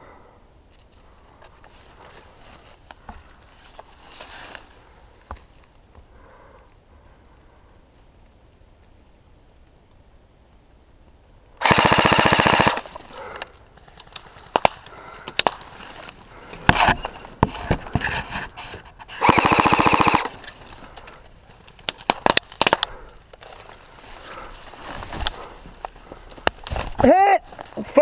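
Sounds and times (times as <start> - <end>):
airsoft gun full-auto bursts: 11.6 - 12.9, 19.2 - 20.4.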